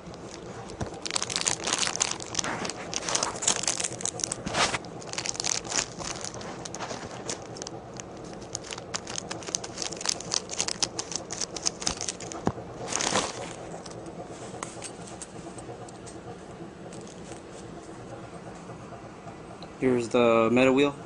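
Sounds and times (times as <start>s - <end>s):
packaging rustle: 0.0s - 14.0s, 16.9s - 17.6s
plastic packaging crinkling: 0.0s - 14.1s
plastic parts clicking: 5.0s - 14.0s.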